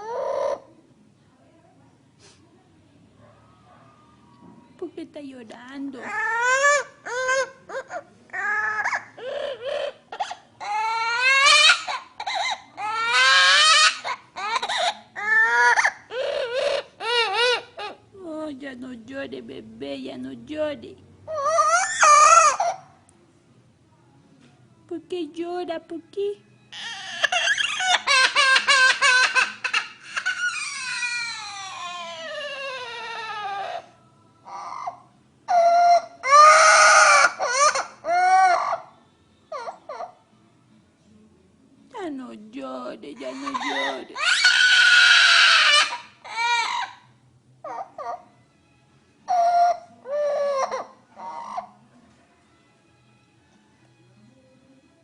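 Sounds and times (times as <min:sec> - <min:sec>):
parrot mimicking baby crying: 0:00.0 - 0:00.7, 0:06.0 - 0:18.1, 0:21.3 - 0:23.0, 0:26.7 - 0:40.3, 0:43.1 - 0:48.4, 0:49.2 - 0:51.9.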